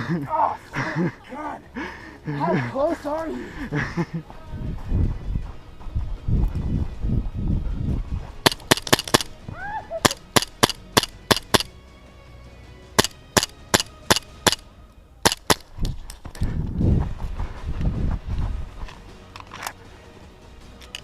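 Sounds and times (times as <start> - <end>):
scuffing movement noise: 4.1 - 8.4, 15.9 - 19.1
airsoft gun shots: 8.4 - 9.3, 10.0 - 11.7, 13.0 - 14.6, 15.2 - 15.7.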